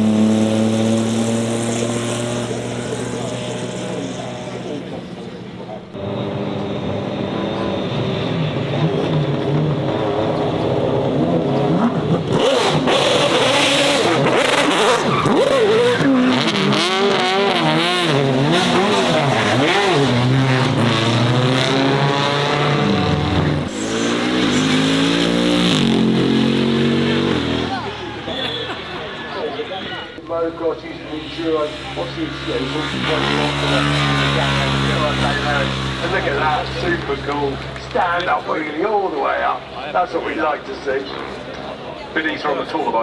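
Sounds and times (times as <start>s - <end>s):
racing car engine revving: 0.0s - 43.0s.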